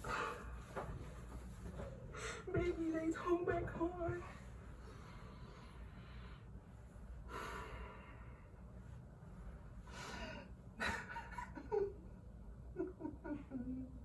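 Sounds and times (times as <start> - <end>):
woman sobbing: 10.1 - 12.1, 12.7 - 14.0.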